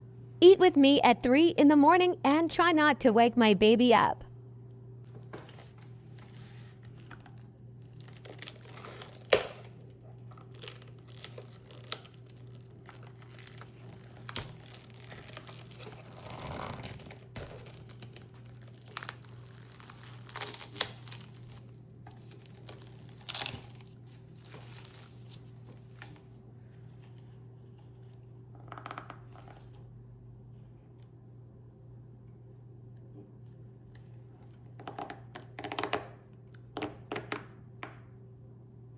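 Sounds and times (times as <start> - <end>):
steady low hum: 0.0 - 38.9
plastic packaging crinkling: 5.1 - 26.3.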